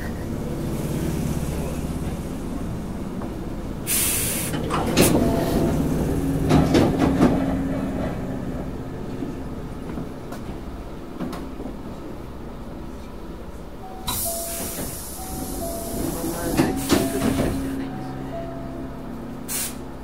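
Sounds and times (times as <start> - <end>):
train running rumble: 0.0 - 20.0
air hiss: 3.9 - 4.6, 14.1 - 17.7, 19.5 - 19.8
clunks: 4.4 - 8.3, 14.0 - 18.2.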